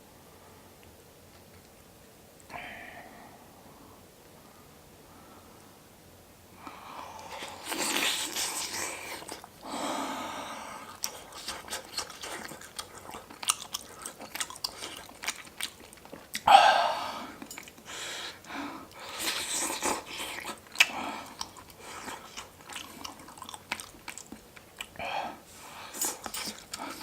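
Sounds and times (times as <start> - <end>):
slurping: 7.2 - 9.6
wet chewing and smacking: 7.2 - 9.6, 10.9 - 16.5, 17.4 - 25.0, 25.8 - 27.0.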